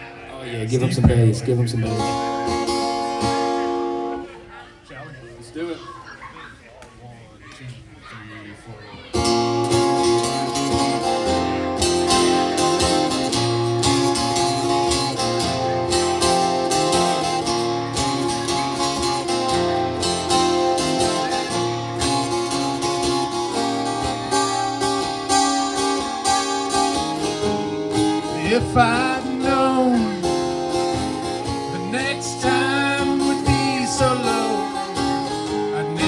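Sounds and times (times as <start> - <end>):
strummed acoustic guitar: 0.0 - 4.5, 9.1 - 36.0
steady low notes: 0.7 - 2.3.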